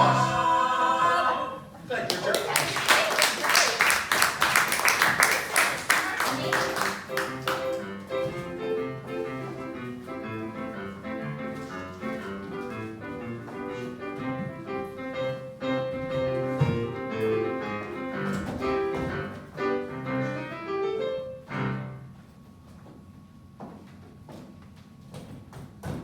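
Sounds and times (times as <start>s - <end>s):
piano playing: 0.0s - 1.3s, 6.2s - 22.2s.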